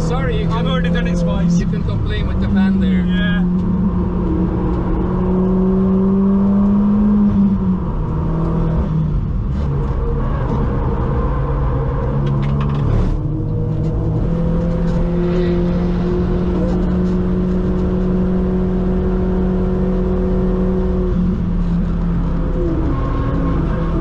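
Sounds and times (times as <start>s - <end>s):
car engine under load: 0.0s - 24.0s.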